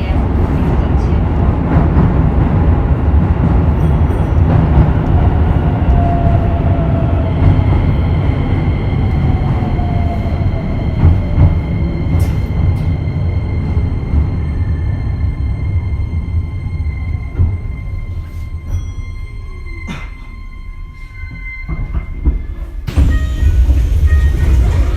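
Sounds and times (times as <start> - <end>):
electric train rumble: 0.0 - 24.9
faint train whine: 4.1 - 24.9.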